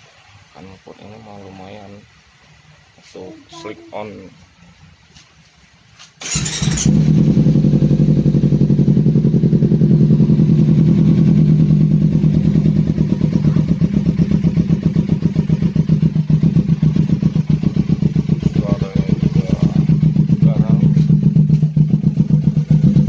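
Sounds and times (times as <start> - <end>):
motorcycle engine idling: 6.2 - 23.0.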